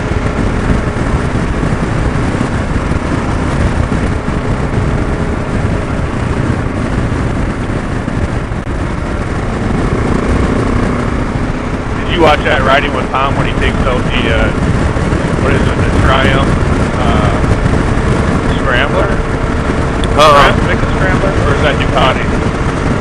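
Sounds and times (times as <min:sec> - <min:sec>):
motorcycle engine: 0:00.0 - 0:23.0
wind noise: 0:00.0 - 0:23.0.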